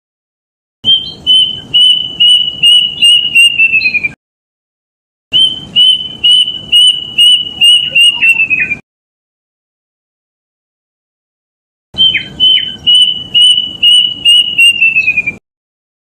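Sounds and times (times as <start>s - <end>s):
cuckoo whistled calls: 0.8s - 4.2s, 5.4s - 8.8s, 12.0s - 15.4s.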